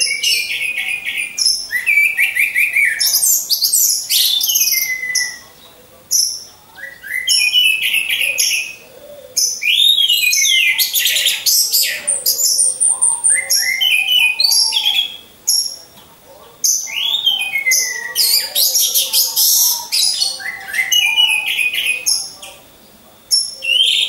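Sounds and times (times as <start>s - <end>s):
thrush singing: 0.0s - 24.0s.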